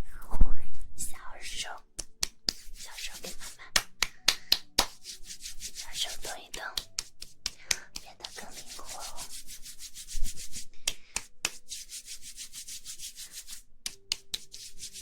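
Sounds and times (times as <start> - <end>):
quick rubbing strokes: 4.8 - 6.3, 8.2 - 10.7, 11.5 - 13.7, 14.3 - 15.0.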